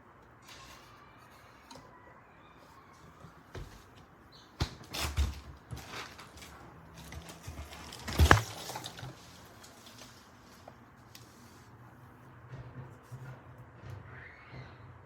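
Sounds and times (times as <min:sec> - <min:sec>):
mini fridge knocks and clatters: 0:03.2 - 0:10.8.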